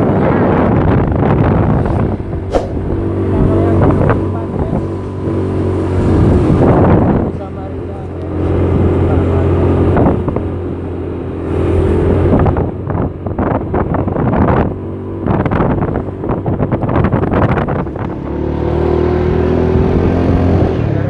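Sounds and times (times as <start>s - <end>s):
wind on microphone: 0.0s - 7.5s, 11.4s - 20.6s.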